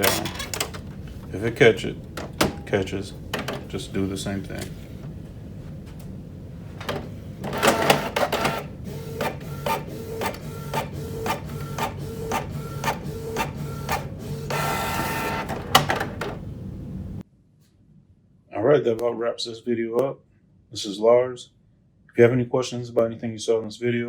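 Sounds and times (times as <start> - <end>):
regular printer clicks: 0.0 - 5.1, 6.8 - 16.7
printer motor hum: 0.0 - 17.2
printer whirring: 0.0 - 17.2.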